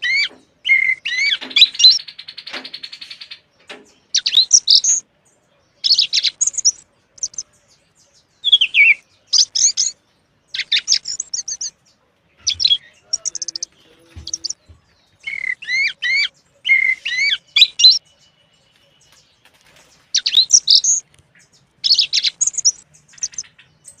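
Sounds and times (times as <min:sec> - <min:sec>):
songbird singing: 0:00.0 - 0:24.0.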